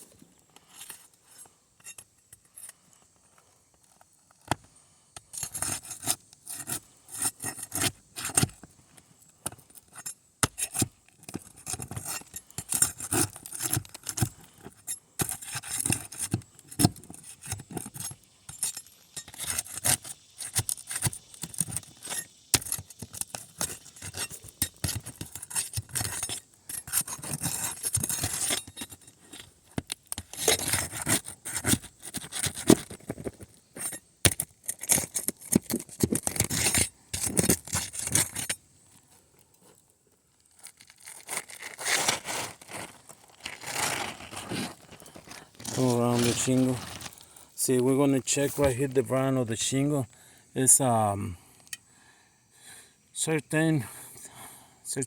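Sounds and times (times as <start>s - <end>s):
metal tool scraping shingles: 5.2s - 8.6s, 9.4s - 38.6s, 40.7s - 48.8s.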